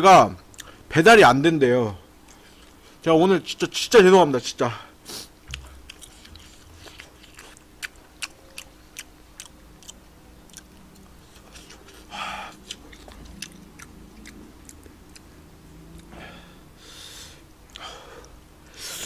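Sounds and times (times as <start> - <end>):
person chewing food: 0.5 - 0.8, 2.2 - 2.8, 5.5 - 16.4
wet mouth clicks: 5.5 - 15.3
breathy sound: 11.7 - 12.7, 16.1 - 19.0.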